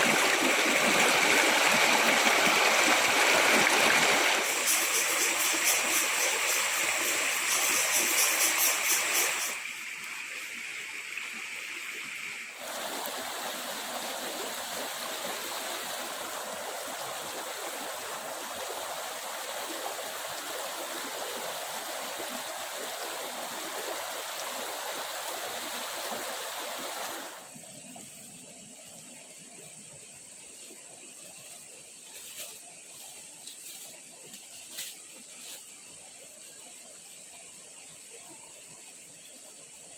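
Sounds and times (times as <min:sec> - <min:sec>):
stream water rushing: 0:00.0 - 0:27.6.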